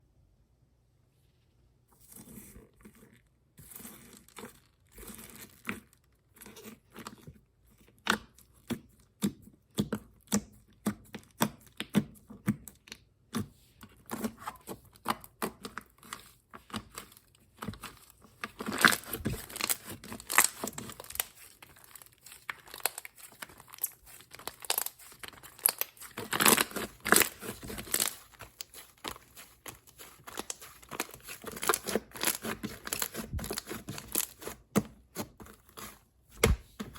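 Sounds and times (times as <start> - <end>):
foam slime crackling and popping: 18.5 - 34.7.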